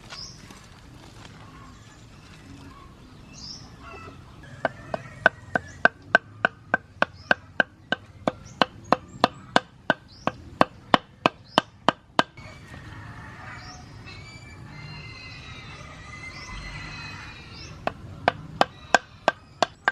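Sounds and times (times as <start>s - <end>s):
chopping strikes on wood: 4.9s - 12.4s.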